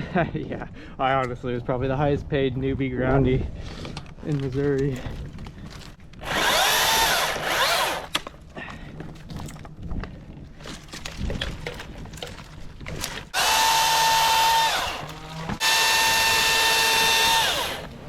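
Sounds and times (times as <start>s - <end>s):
electric chainsaw whine: 6.2s - 8.2s, 13.3s - 18.0s
knocks and rustling: 9.0s - 13.4s.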